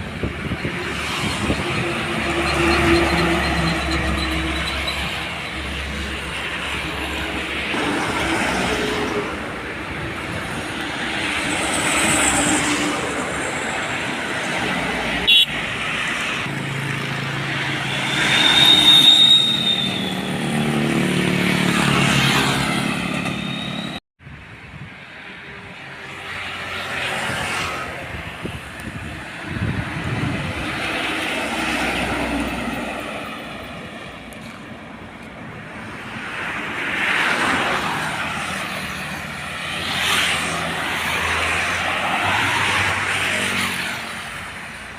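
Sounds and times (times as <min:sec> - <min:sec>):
diesel trucks passing: 0:00.0 - 0:44.9
road traffic: 0:00.0 - 0:44.9
short high whistle: 0:18.3 - 0:20.4.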